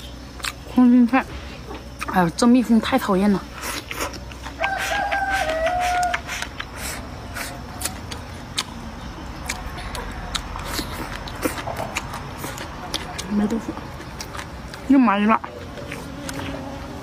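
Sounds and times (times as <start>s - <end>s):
chewing and slurping: 3.5s - 17.0s
rooster crowing: 4.6s - 6.3s.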